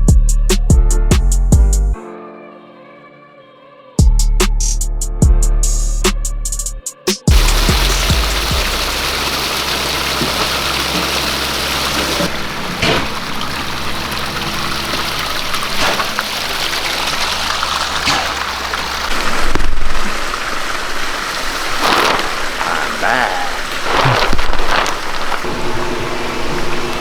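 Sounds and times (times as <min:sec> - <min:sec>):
waterfall splashing: 0:07.3 - 0:27.0.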